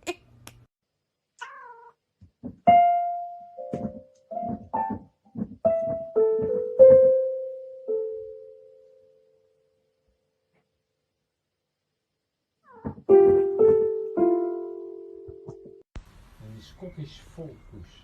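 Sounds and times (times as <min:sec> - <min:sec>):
cat meowing: 0:01.4 - 0:02.0, 0:12.6 - 0:13.0
piano notes with key knock: 0:02.4 - 0:08.5, 0:12.8 - 0:15.8.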